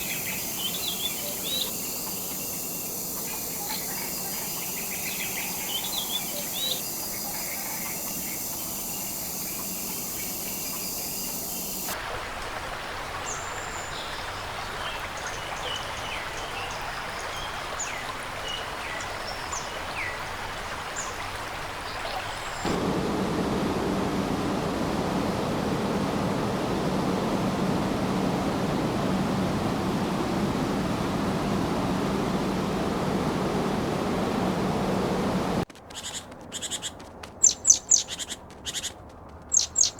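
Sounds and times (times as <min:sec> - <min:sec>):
high insect drone: 0:00.0 - 0:12.0, 0:22.7 - 0:35.6
steady hiss: 0:00.0 - 0:12.0, 0:22.6 - 0:35.7
running water rushing: 0:00.0 - 0:35.7.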